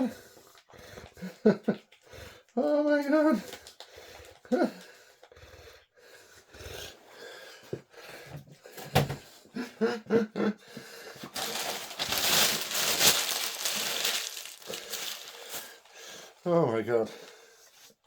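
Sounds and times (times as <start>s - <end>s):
packaging clicks and knocks: 11.3s - 15.7s
packaging crinkling rustle: 11.3s - 16.0s.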